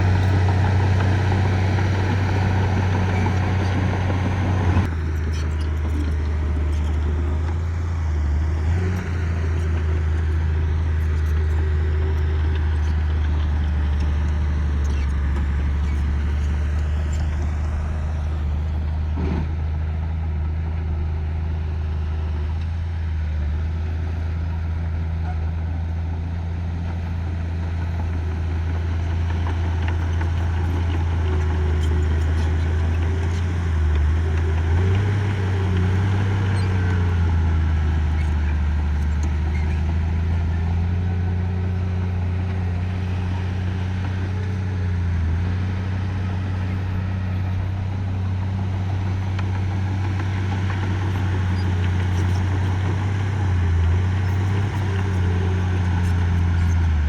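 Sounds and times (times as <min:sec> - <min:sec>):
diesel engine under load: 0:00.0 - 0:57.0.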